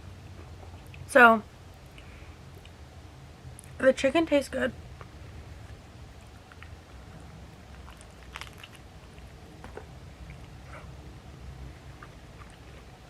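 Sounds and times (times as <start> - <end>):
person chewing: 6.2 - 11.0, 11.8 - 13.0.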